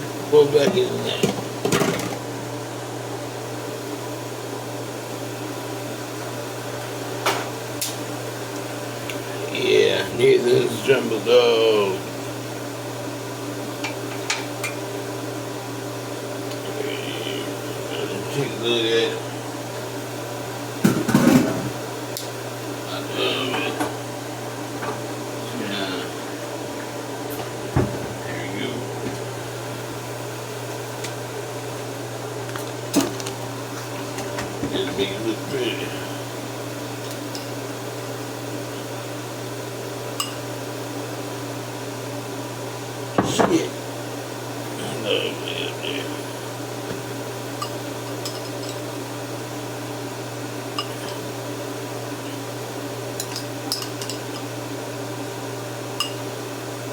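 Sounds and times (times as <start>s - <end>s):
kitchen appliance hum: 0.0s - 56.9s
utensil clinking on dish: 47.6s - 48.8s, 53.2s - 54.5s, 56.0s - 56.2s.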